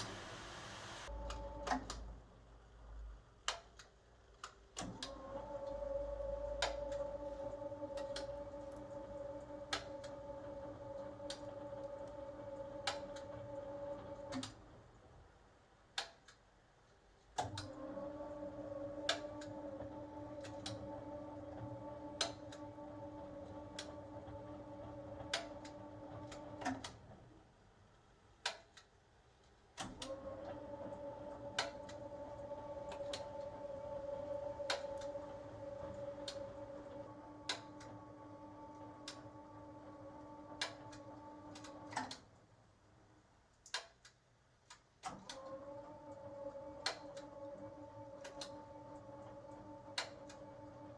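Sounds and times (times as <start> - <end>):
washing machine motor humming: 0.0 - 2.1, 4.8 - 14.9, 17.4 - 27.3, 29.9 - 42.3, 45.2 - 50.9.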